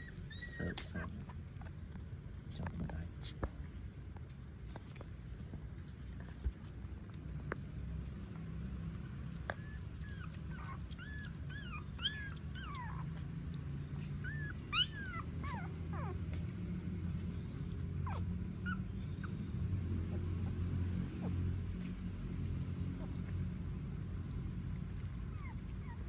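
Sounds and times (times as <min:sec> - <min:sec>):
puppies whimpering: 0:00.0 - 0:01.4, 0:09.0 - 0:21.5, 0:24.9 - 0:26.0
steady low hum: 0:00.0 - 0:26.0.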